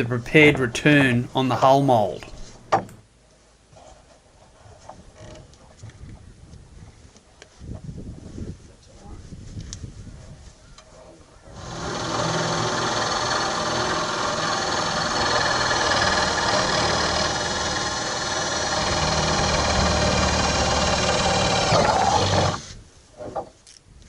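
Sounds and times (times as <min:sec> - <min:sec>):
power tool motor running: 0:11.5 - 0:22.7.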